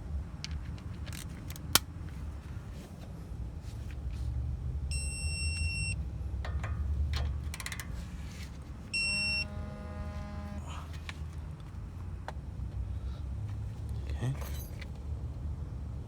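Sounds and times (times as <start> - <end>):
lower held tone: 8.9 - 10.9
high electronic beeps: 9.0 - 9.8.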